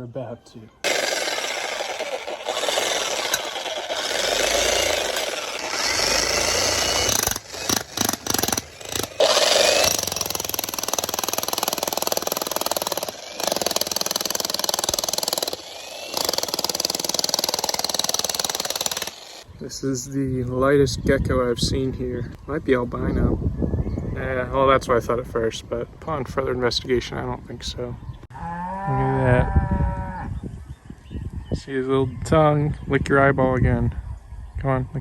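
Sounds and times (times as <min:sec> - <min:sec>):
jackhammer hammering: 0:00.8 - 0:19.4.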